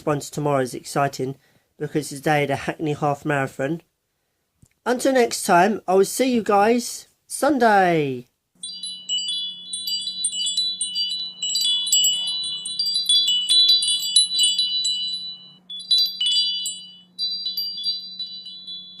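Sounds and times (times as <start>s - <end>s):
high chimes tinkling: 8.6s - 19.0s.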